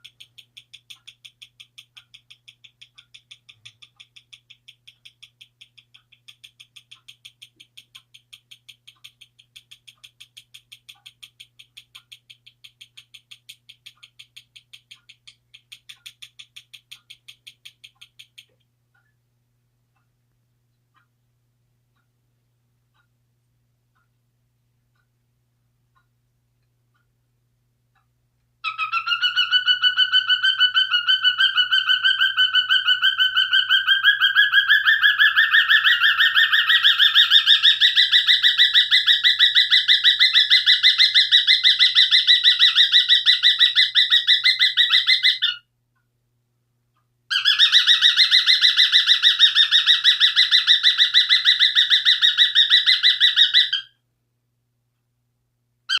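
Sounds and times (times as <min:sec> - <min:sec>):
cockatiel calling shrilly: 0:28.6 - 0:45.6, 0:47.3 - 0:53.9.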